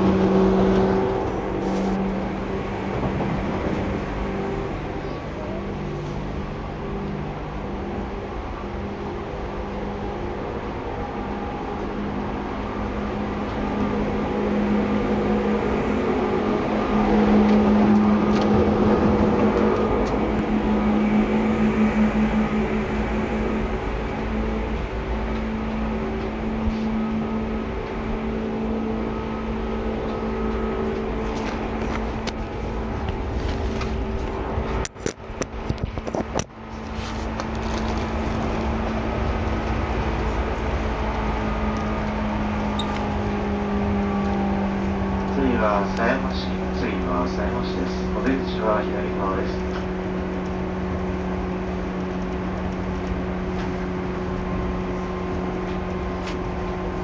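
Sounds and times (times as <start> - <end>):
train low hum: 0.0 - 57.0
wheel and track rumble: 0.0 - 57.0.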